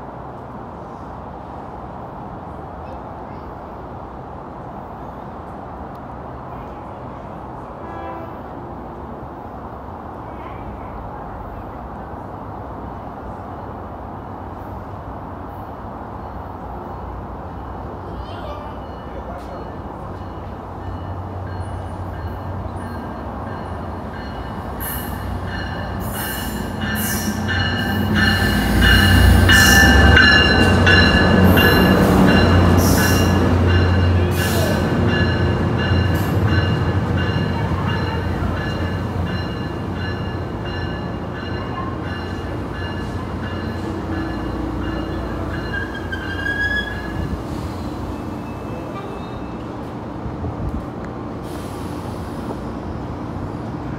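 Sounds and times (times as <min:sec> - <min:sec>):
train rumble: 0:00.0 - 0:53.9
high wheel squeal: 0:45.0 - 0:49.6.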